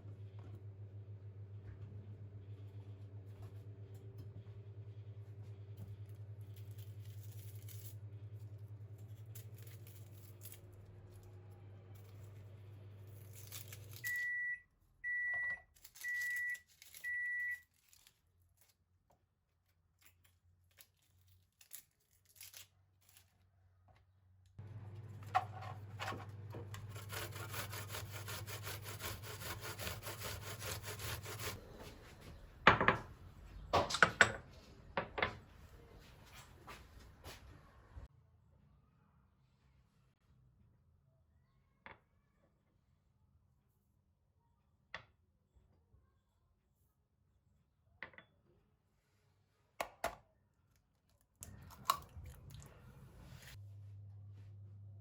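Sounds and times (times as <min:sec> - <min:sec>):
microwave oven humming: 0:00.0 - 0:17.6, 0:24.6 - 0:33.1, 0:51.4 - 0:55.0
microwave beeps: 0:14.0 - 0:17.6
kitchenware knocks and clatter: 0:32.7 - 0:33.1, 0:33.7 - 0:35.4.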